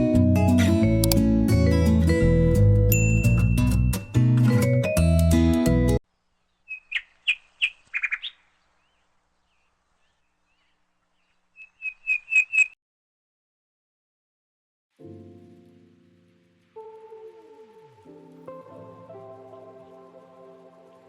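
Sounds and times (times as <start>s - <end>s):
background music: 0.0s - 6.0s, 15.0s - 21.0s
songbird chirping: 6.0s - 12.8s.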